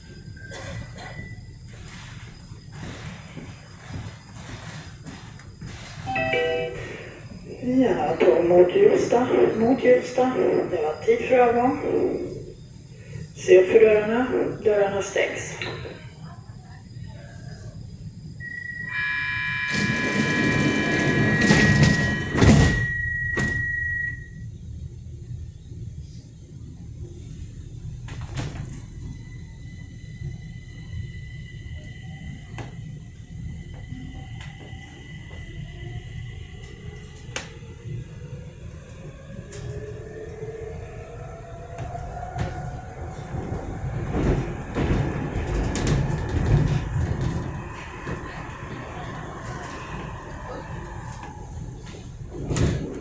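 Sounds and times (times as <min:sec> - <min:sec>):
train wheels rumbling on rail: 0:00.0 - 0:53.0
sliding doors closing: 0:00.5 - 0:12.3, 0:18.4 - 0:24.2, 0:27.9 - 0:31.1, 0:32.2 - 0:53.0
door-closing warning beep: 0:06.1 - 0:07.2, 0:18.4 - 0:24.4
doors closing with heavy thud: 0:18.4 - 0:24.2, 0:28.0 - 0:29.3, 0:33.5 - 0:53.0.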